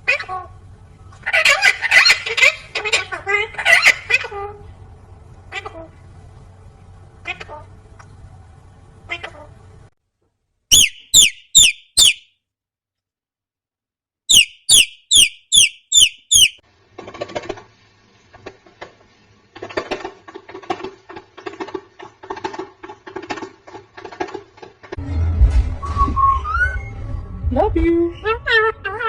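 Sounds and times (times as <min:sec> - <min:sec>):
parrot pulsing chatter: 0:00.0 - 0:00.6, 0:01.2 - 0:04.6, 0:10.7 - 0:12.2, 0:14.3 - 0:16.6
parrot squeaking: 0:10.7 - 0:12.3, 0:14.3 - 0:16.6.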